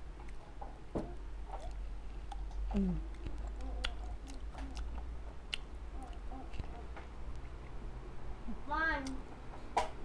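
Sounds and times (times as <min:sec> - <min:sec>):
person chewing with wet smacks: 0:00.1 - 0:00.6, 0:01.4 - 0:07.8.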